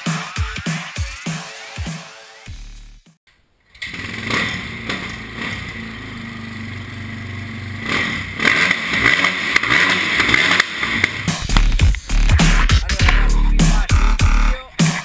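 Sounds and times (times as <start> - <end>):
motocross bike engine revving: 3.7 - 14.5.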